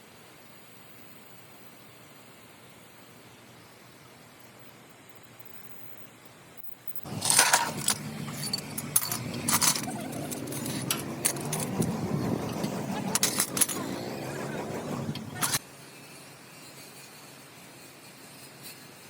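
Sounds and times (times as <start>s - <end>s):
metallic clinks and rattling: 6.9s - 15.6s
steady low hum: 7.1s - 15.6s.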